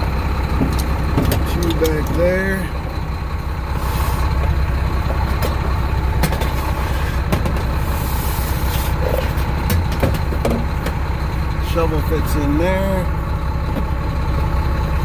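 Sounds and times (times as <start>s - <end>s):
diesel truck engine idling: 0.0s - 15.0s
gear knocking in cab: 0.5s - 2.3s, 9.1s - 11.0s.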